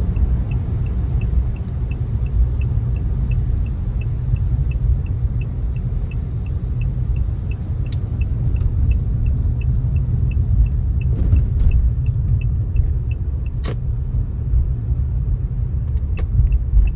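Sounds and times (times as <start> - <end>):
car road rumble: 0.0 - 16.9
light regular ticking: 0.1 - 13.6.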